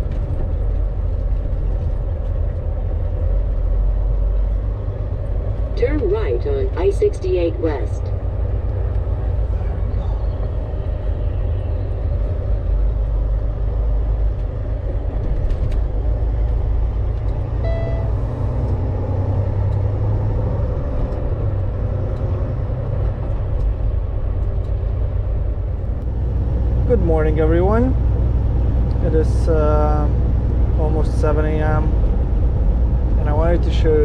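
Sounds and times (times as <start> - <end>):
truck engine and road drone: 0.0 - 34.0
short beep: 17.6 - 18.2.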